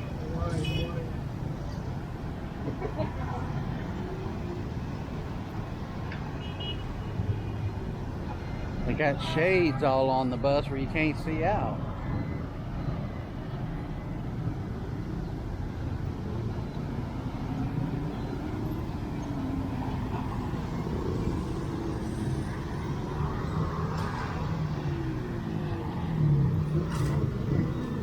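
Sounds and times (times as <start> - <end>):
bus engine rumble: 0.0 - 28.0
road noise: 0.0 - 28.0.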